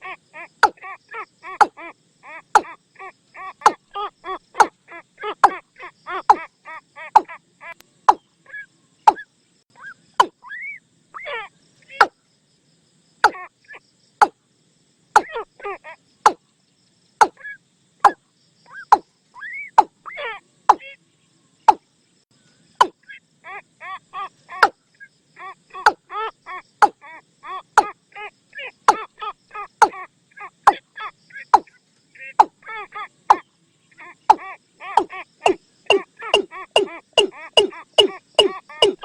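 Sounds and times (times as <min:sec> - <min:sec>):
croaking bird calls: 0:00.0 - 0:12.3, 0:13.2 - 0:14.4, 0:15.1 - 0:39.0
watercock clicking calls: 0:01.6 - 0:01.8, 0:02.6 - 0:02.8, 0:07.2 - 0:08.3, 0:15.2 - 0:15.4, 0:34.3 - 0:39.0.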